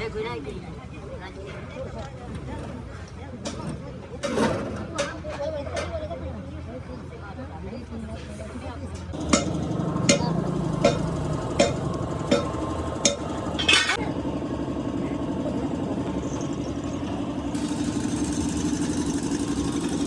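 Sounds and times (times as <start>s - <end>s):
engine idling: 9.1s - 20.0s
hammer knocking on metal: 9.2s - 13.3s.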